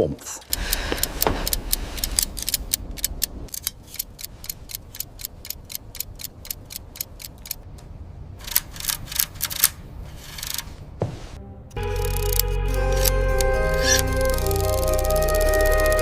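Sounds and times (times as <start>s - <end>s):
clockwork mechanism ticking: 0.4s - 7.6s, 11.8s - 16.0s.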